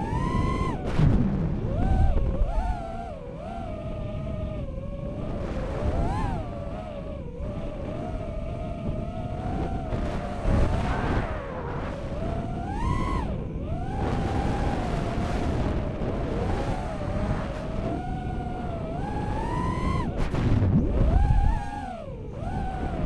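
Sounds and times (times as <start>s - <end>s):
drone motors whining: 0.0s - 23.0s
wind rumble and prop wash: 0.0s - 23.0s.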